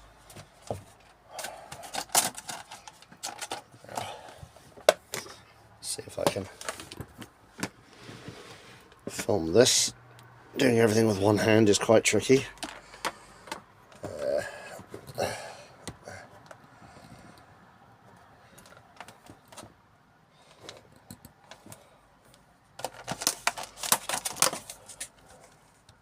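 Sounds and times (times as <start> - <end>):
plastic enclosures clicking and knocking: 0.3 - 5.4, 6.1 - 7.8, 12.4 - 15.2, 18.6 - 19.8, 22.7 - 25.2
plastic rattling: 1.4 - 4.1, 22.8 - 25.2.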